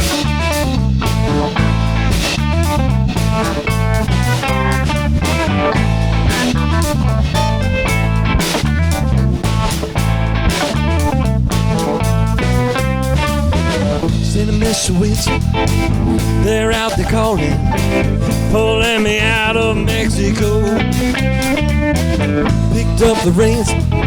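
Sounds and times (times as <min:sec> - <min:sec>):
bass: 0:00.0 - 0:24.0
drum kit beat: 0:00.0 - 0:24.0
guitar playing: 0:00.0 - 0:24.0.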